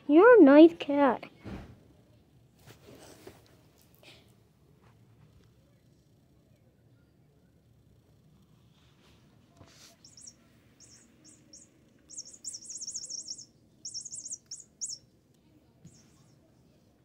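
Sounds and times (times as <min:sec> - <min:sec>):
small bird chirping: 0:09.9 - 0:15.1, 0:15.9 - 0:16.5.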